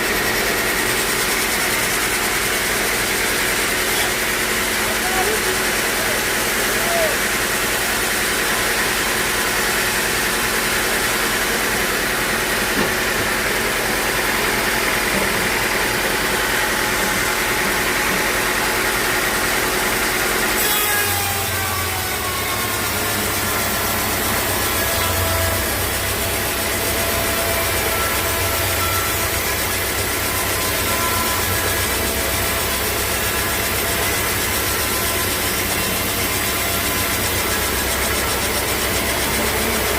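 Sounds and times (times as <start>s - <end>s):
saw cutting through log: 0.0s - 39.9s
deep steady machine hum: 21.4s - 39.9s.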